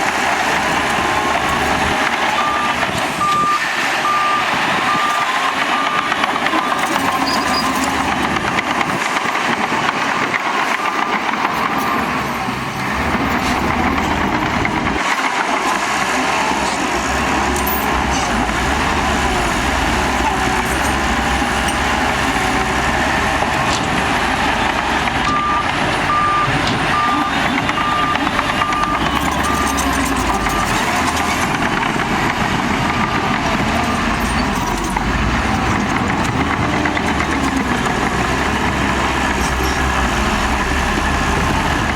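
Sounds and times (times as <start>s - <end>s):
diesel machinery engine drone: 0.0s - 41.9s
reversing alarm beeping: 1.1s - 8.3s, 25.2s - 31.2s.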